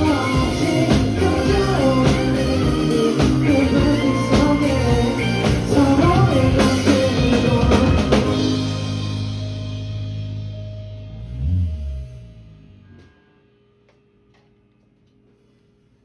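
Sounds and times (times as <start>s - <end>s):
live rock band playing: 0.0s - 11.1s.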